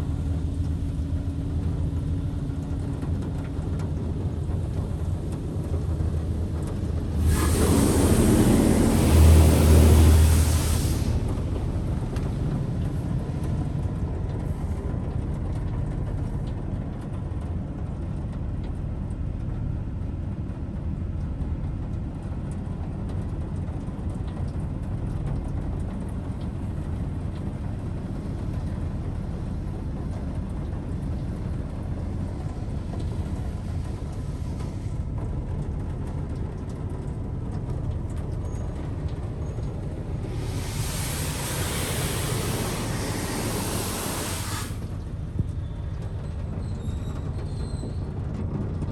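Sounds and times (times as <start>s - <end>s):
car wash machine rumble: 0.0s - 16.8s, 24.0s - 46.7s
loud hiss of spray: 7.1s - 12.2s, 40.1s - 45.0s.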